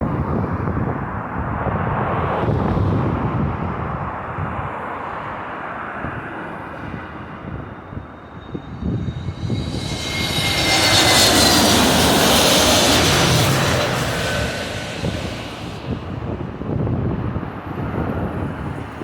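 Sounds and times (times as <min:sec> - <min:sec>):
jet airliner engines roaring: 0:06.2 - 0:19.0.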